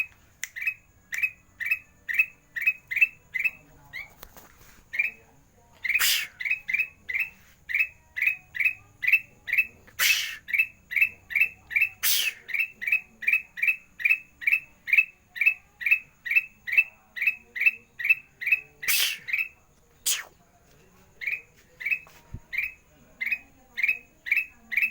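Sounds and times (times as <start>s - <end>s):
loud harsh bird squawk: 5.8s - 6.8s, 10.0s - 10.7s, 11.8s - 12.7s, 18.8s - 20.3s
bird chirping rapidly: 5.8s - 16.9s, 17.6s - 20.3s.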